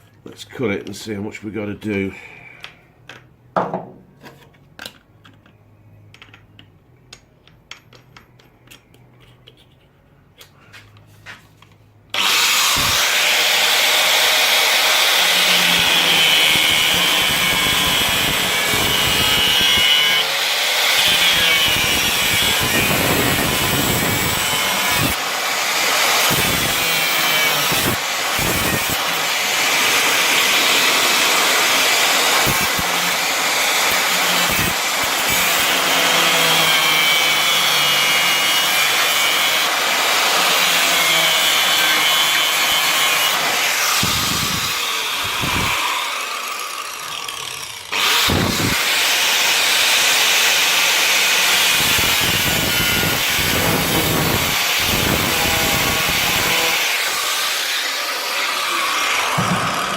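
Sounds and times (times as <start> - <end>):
angle grinder cutting steel: 12.2 - 59.9.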